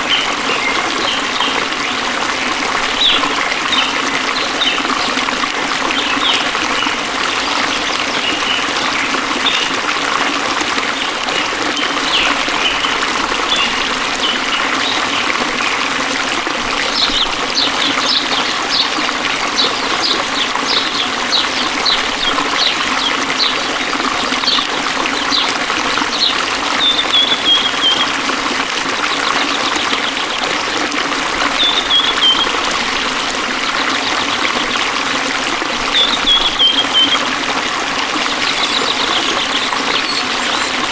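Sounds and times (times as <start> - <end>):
forest stream trickling: 0.0 - 40.9
birds chirping: 11.4 - 16.0, 16.7 - 28.2, 31.4 - 33.0, 35.8 - 37.4, 38.2 - 40.9.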